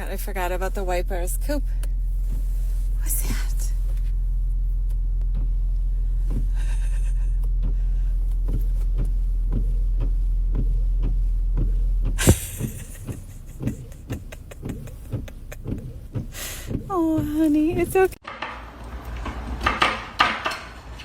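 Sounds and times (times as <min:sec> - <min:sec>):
car engine drone: 0:00.0 - 0:18.2
faint ticking: 0:07.4 - 0:18.2
loud knock: 0:12.2 - 0:14.9.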